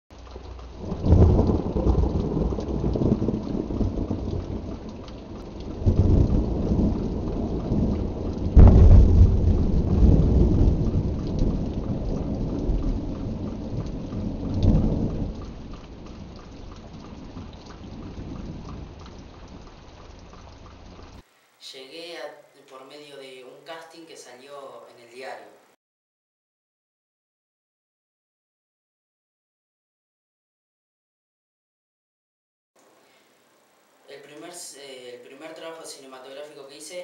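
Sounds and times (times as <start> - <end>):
steady rain: 0.1 - 25.8, 32.8 - 37.0
thunder rumbling: 0.2 - 21.2.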